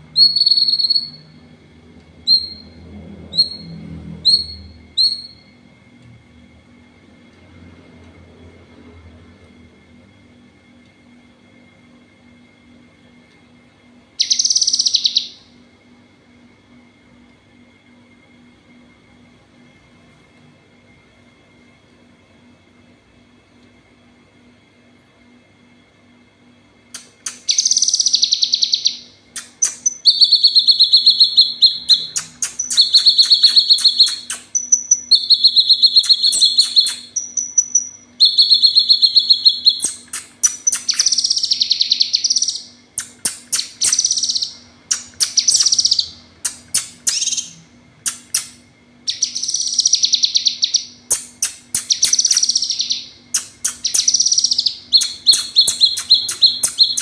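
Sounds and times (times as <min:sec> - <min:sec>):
bird buzzy trills: 0:00.0 - 0:01.6, 0:02.2 - 0:05.7, 0:13.9 - 0:16.4, 0:26.8 - 0:57.0
bird chip notes: 0:27.0 - 0:57.0.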